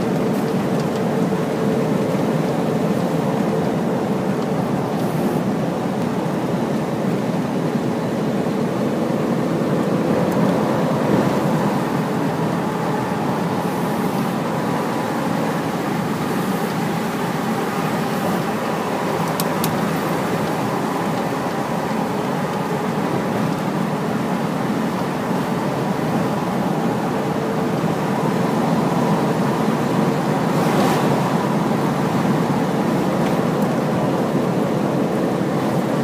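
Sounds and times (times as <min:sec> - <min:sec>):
road and tyre noise: 0:00.0 - 0:36.0
truck engine running: 0:00.0 - 0:36.0.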